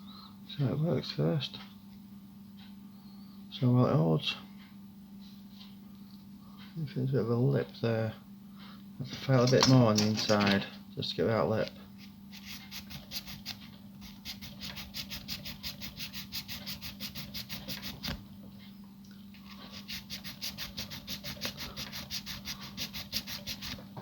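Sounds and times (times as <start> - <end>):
hand file rasping: 12.3 - 18.2, 19.4 - 23.8.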